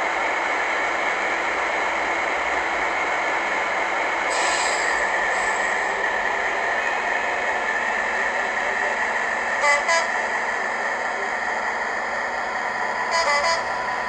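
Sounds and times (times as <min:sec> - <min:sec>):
diesel locomotive engine running: 0:00.0 - 0:14.0
two-note train horn: 0:09.6 - 0:10.2, 0:13.1 - 0:13.8.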